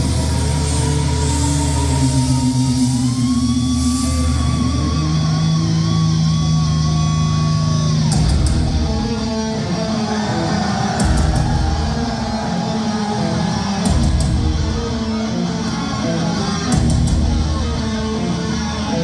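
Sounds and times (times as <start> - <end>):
distorted electric guitar bending: 0.0 - 19.0
low guitar and bass notes: 0.0 - 19.0.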